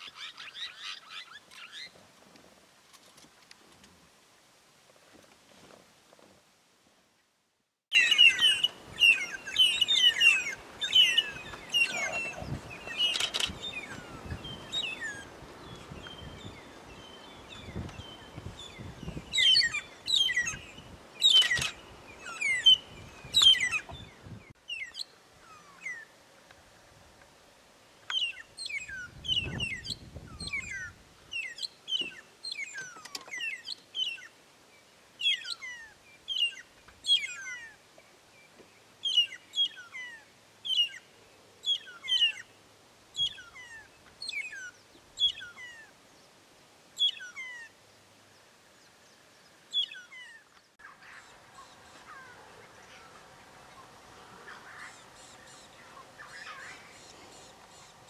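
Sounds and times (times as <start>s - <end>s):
birds whistling downward: 7.9s - 15.3s
faint bird calls: 7.9s - 15.4s, 47.0s - 58.0s
bush ambience: 7.9s - 58.0s.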